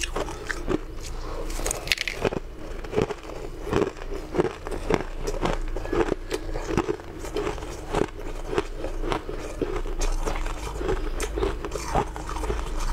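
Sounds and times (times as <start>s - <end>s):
crunching shaved ice: 0.0s - 12.9s.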